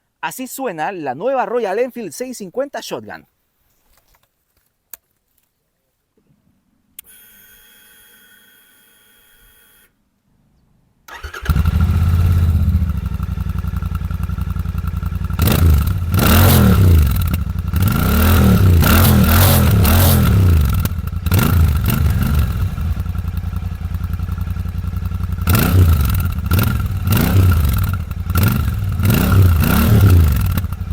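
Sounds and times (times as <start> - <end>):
motorcycle engine idling and revving: 11.1 - 30.9.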